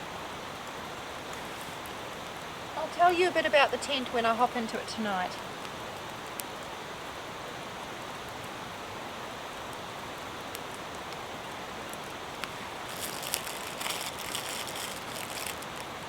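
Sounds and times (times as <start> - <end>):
heavy rain: 0.0 - 16.0
high crackling: 2.7 - 6.5, 11.9 - 16.0.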